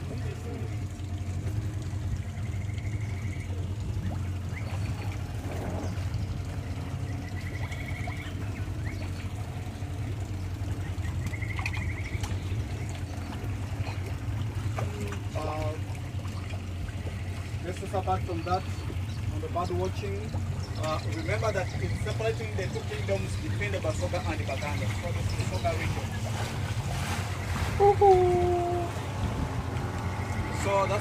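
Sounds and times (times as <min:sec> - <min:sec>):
low engine rumble: 0:00.0 - 0:31.0
water trickling and splashing: 0:00.0 - 0:31.0
bird trilling: 0:06.7 - 0:09.3, 0:10.7 - 0:13.3.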